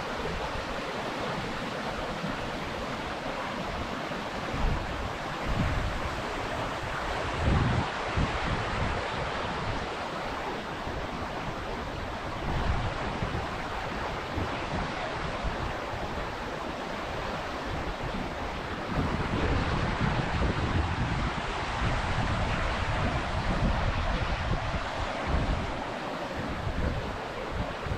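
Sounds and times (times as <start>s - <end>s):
wind buffeting microphone: 4.4s - 10.0s, 17.1s - 27.9s
waterfall rushing: 13.6s - 27.9s.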